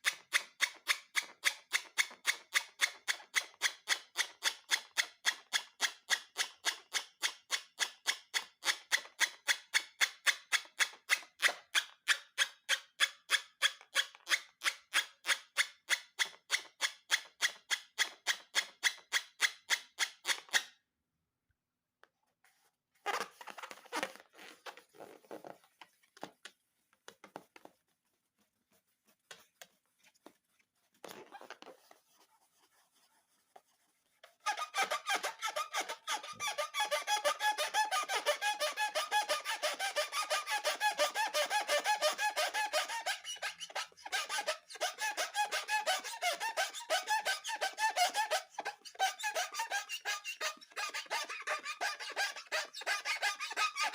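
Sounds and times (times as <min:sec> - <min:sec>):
rubber balloons squeaking: 0:23.0 - 0:25.8, 0:31.0 - 0:31.8, 0:34.4 - 0:53.9.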